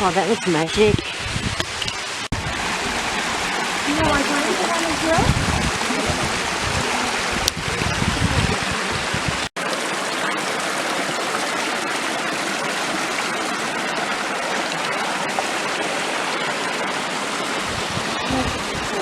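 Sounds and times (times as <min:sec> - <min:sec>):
water rushing down waterfall: 0:00.0 - 0:19.0.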